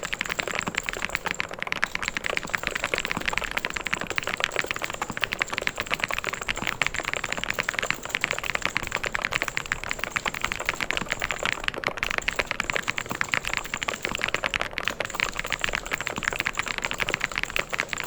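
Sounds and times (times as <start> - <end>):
mechanical keyboard typing: 0.0 - 18.0.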